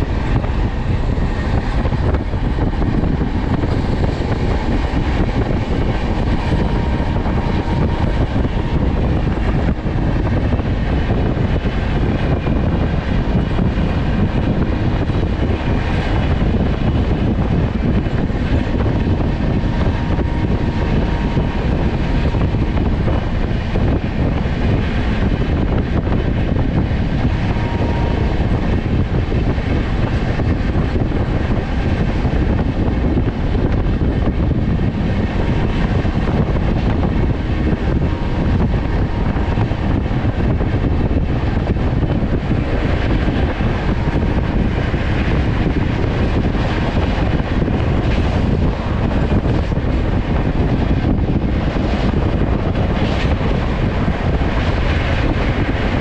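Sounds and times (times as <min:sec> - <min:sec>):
train rumbling at speed: 0:00.0 - 0:56.0.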